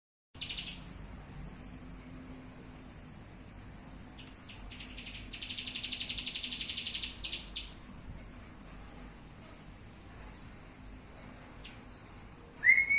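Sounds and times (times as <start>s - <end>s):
bird chirping: 0.4s - 2.1s, 2.9s - 3.4s, 4.1s - 7.8s
bird trilling: 2.9s - 3.3s, 4.5s - 7.7s.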